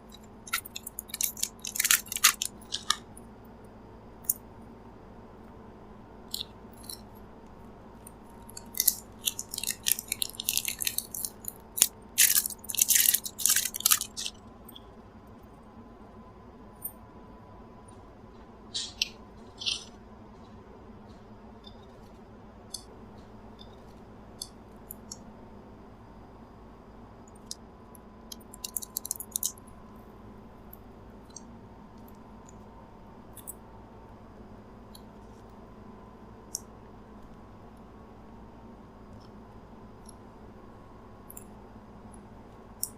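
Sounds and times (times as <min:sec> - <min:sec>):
faint steady hum: 0:00.0 - 0:42.9
chocolate wrappers crackling: 0:00.4 - 0:03.1, 0:08.3 - 0:14.4, 0:28.3 - 0:29.6.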